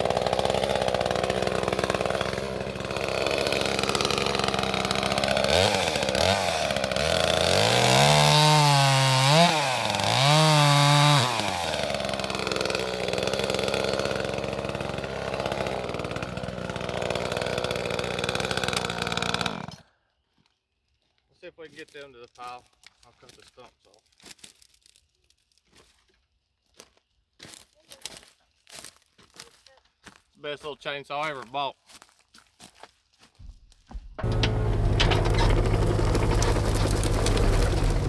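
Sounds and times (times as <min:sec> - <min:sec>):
chainsaw idling and revving: 0:00.0 - 0:19.8, 0:34.0 - 0:38.0.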